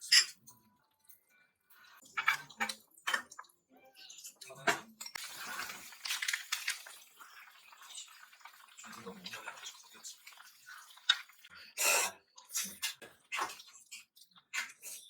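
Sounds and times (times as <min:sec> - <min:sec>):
tap water running: 0:05.2 - 0:11.5.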